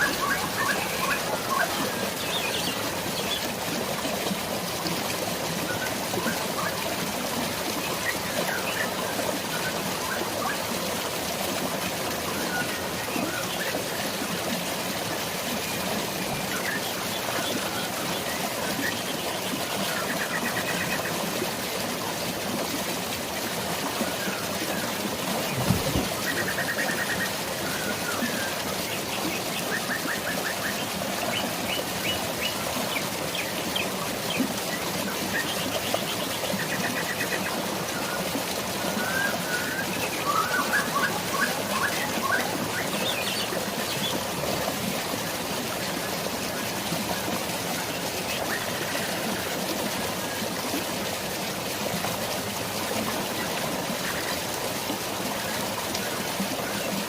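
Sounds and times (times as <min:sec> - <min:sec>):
flowing water: 0:00.0 - 0:57.0
birds chirping: 0:24.1 - 0:34.4.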